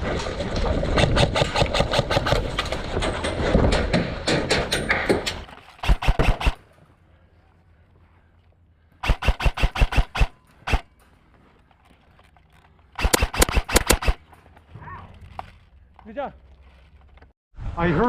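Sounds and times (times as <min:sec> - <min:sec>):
airsoft guns firing: 0:01.0 - 0:02.7, 0:04.3 - 0:06.6, 0:09.0 - 0:10.9, 0:13.0 - 0:14.3.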